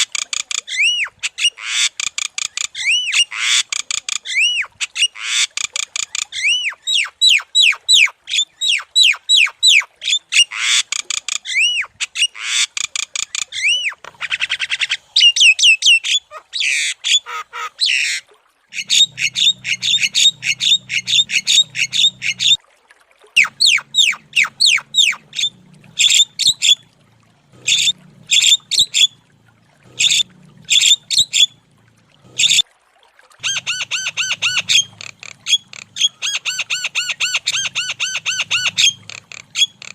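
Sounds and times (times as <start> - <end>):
bird whistles chirps and squawks: 4.3 - 22.6, 23.4 - 26.8, 27.7 - 29.2, 30.0 - 31.5, 33.4 - 39.9
faint low hum: 23.4 - 32.6.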